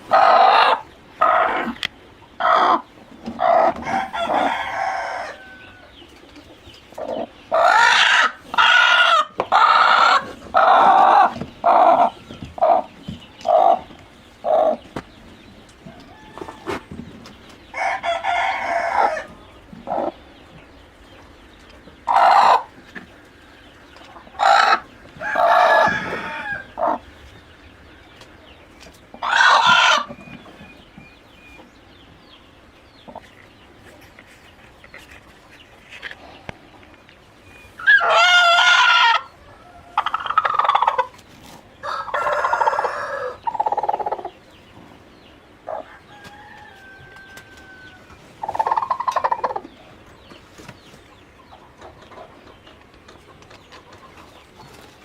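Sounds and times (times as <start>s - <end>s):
hens clucking: 0.0s - 55.0s
rooster crowing: 3.6s - 5.9s, 16.0s - 16.8s, 17.7s - 19.4s, 25.2s - 26.8s, 41.8s - 43.4s, 45.9s - 48.2s.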